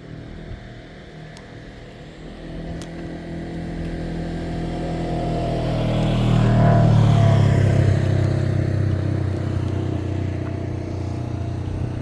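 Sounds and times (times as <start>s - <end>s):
vehicle engine passing by: 3.6s - 12.0s.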